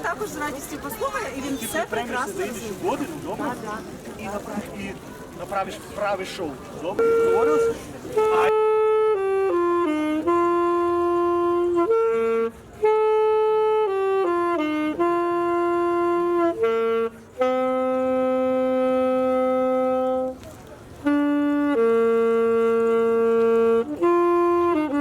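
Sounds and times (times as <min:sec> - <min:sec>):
wind instrument slow melody: 0:07.0 - 0:25.0.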